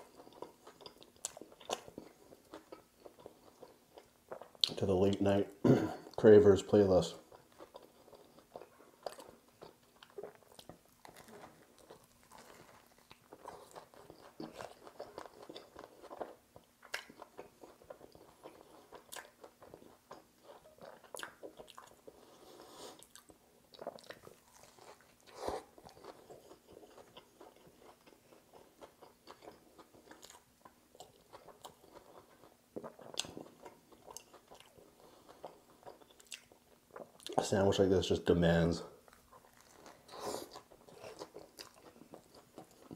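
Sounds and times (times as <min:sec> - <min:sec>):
crunchy chewing: 0:07.1 - 0:37.4, 0:39.0 - 0:42.9.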